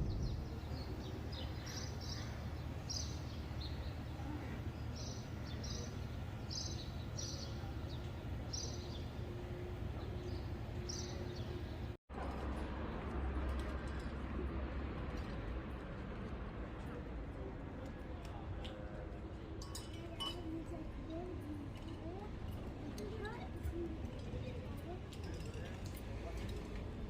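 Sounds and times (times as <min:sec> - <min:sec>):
steady low rumble: 0:00.0 - 0:05.4
small birds chirping: 0:00.0 - 0:09.3.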